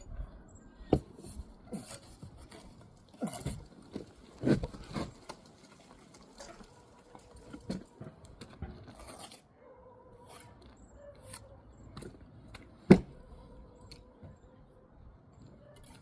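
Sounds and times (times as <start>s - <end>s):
trowel scraping mortar on brick: 0.9s - 5.3s, 6.4s - 12.1s.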